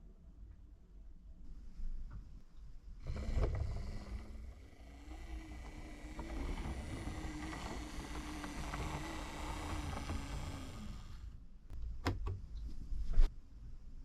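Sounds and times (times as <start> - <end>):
model locomotive motor rumble: 3.0 - 11.4.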